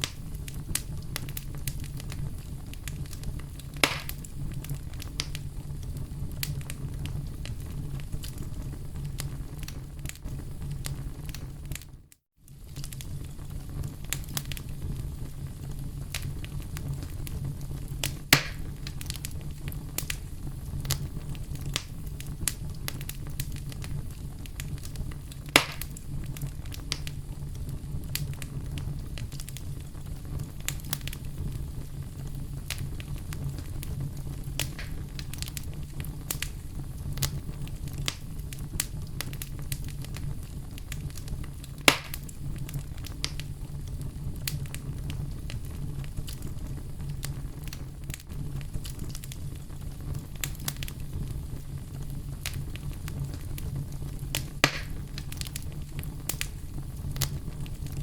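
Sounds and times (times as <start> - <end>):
burning wood crackling: 0.0 - 58.0
low fire rumble: 0.0 - 58.0
sharp loud fire pops: 3.8 - 4.3, 18.3 - 18.7, 25.5 - 26.0, 34.6 - 35.2, 41.8 - 42.3, 54.6 - 55.3.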